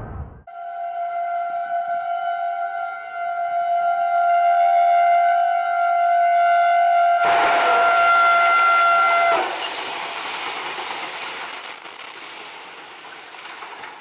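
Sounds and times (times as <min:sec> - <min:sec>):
two-tone train horn blast: 0:00.6 - 0:09.6
train passing on track: 0:07.2 - 0:14.0.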